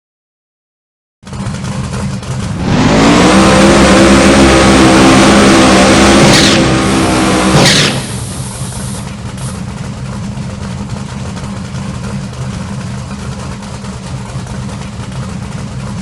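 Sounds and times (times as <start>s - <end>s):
car engine revving: 1.3s - 16.0s
short hisses: 7.6s - 9.6s.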